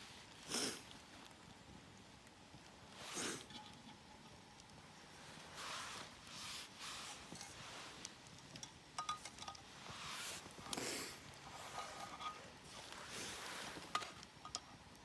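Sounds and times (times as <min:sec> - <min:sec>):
light clinks of small items: 0:03.0 - 0:15.0
soft rustling handling: 0:05.0 - 0:14.5.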